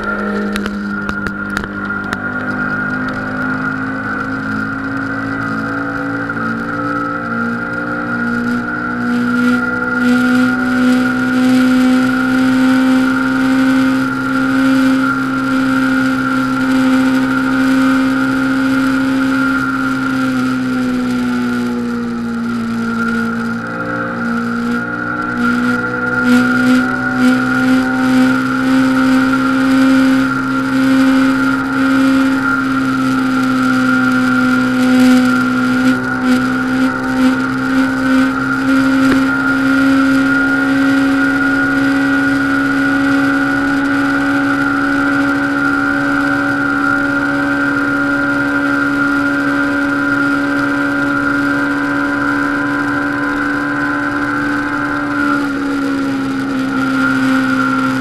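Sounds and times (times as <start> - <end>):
motorcycle engine at high speed: 0.0 - 58.0
wind rush: 16.2 - 58.0.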